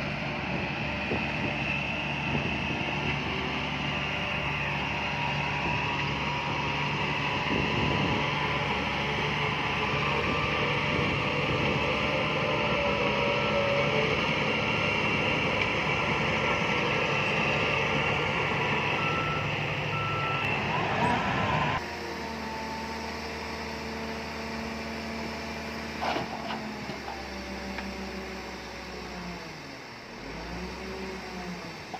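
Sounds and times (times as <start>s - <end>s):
heavy diesel machinery working: 0.0s - 31.9s
steady engine drone: 0.0s - 31.9s
reversing alarm beeping: 18.8s - 21.8s.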